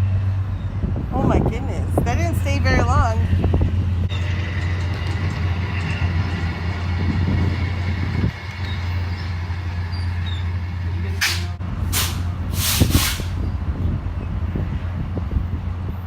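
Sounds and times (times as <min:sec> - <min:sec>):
low engine hum: 0:00.0 - 0:16.0
hissing air bursts: 0:11.2 - 0:13.4.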